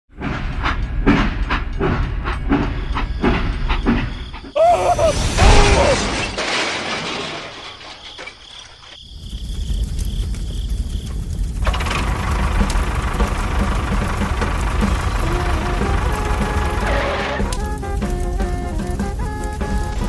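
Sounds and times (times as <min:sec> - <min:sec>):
hissing burst with gliding tones: 0:04.5 - 0:06.4
low mechanical rumble with knocks: 0:09.8 - 0:20.0.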